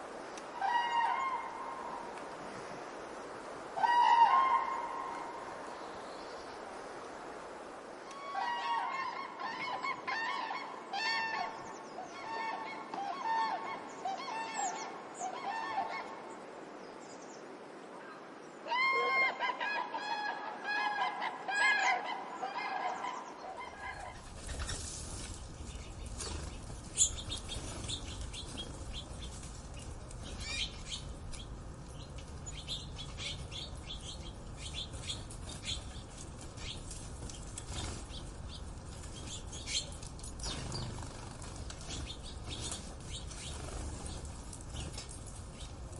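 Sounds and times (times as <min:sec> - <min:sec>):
chorus of chirps and clicks: 0:27.3 - 0:36.0.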